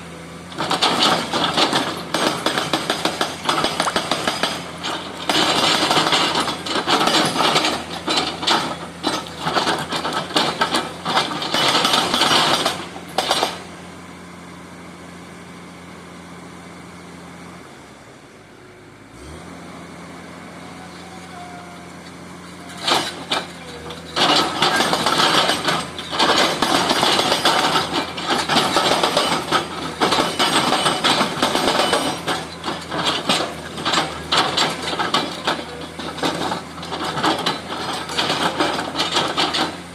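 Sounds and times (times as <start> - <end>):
diesel engine humming: 0.0 - 39.9
hydraulic breaker hammering: 0.6 - 13.8, 22.6 - 39.9.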